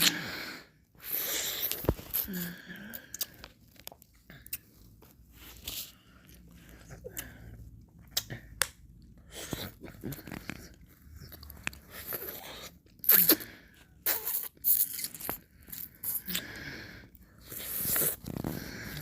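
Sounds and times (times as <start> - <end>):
mouth eating ice cream: 9.2 - 16.6.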